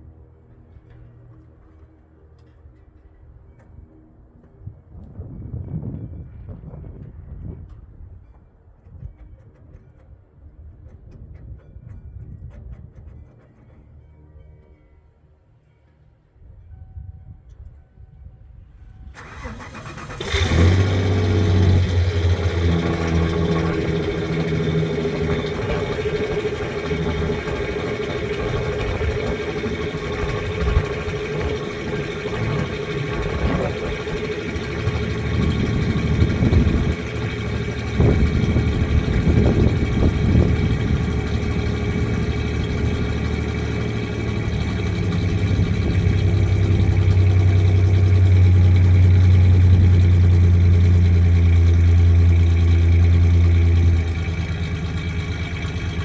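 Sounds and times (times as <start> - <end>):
engine idling with misfire: 19.2 - 56.0.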